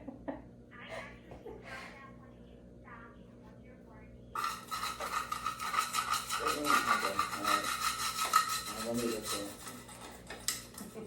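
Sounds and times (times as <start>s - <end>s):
rasping scraping with whine: 4.4s - 11.0s.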